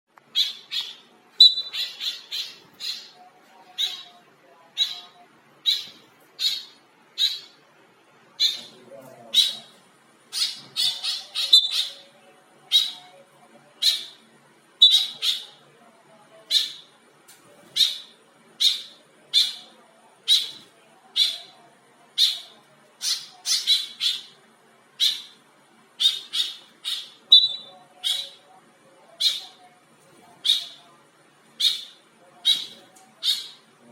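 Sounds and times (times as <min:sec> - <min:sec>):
bird squawking calls: 0:00.3 - 0:04.2, 0:04.8 - 0:07.6, 0:08.4 - 0:09.7, 0:10.3 - 0:12.1, 0:14.8 - 0:15.6, 0:26.0 - 0:28.4, 0:31.6 - 0:33.7.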